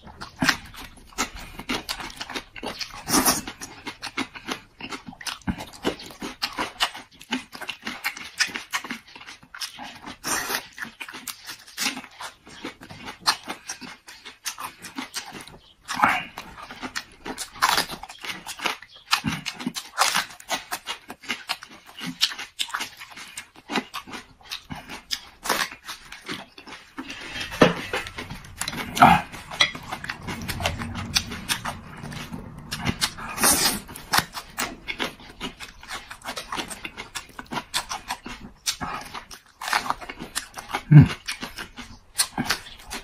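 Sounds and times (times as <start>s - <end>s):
person chewing with crunches: 0.0s - 43.0s.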